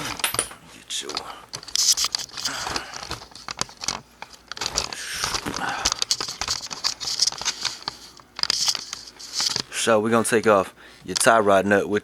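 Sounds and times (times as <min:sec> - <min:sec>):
rustling: 0:01.0 - 0:09.9.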